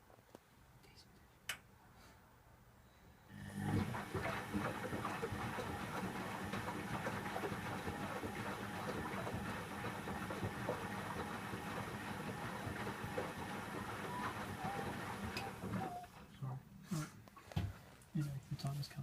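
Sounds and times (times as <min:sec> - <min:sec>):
washing machine running: 0:03.3 - 0:16.3.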